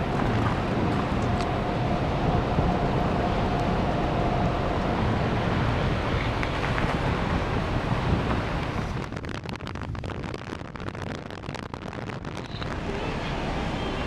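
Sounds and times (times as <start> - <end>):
wind rumbling on microphone: 0.0 - 14.0
crackly noise: 6.1 - 14.0.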